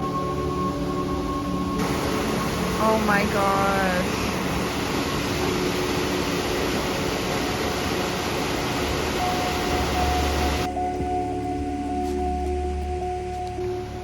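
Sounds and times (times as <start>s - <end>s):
waterfall roaring: 1.8s - 10.7s.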